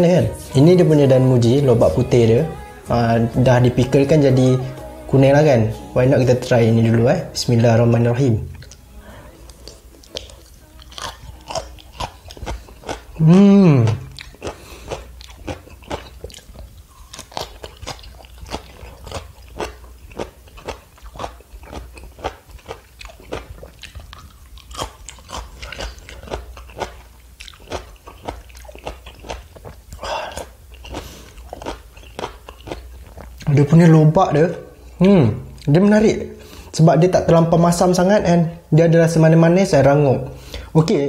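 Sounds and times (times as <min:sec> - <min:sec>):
person humming: 0:00.0 - 0:07.4, 0:08.8 - 0:12.2, 0:13.1 - 0:14.2
crunching and chewing: 0:08.4 - 0:33.9.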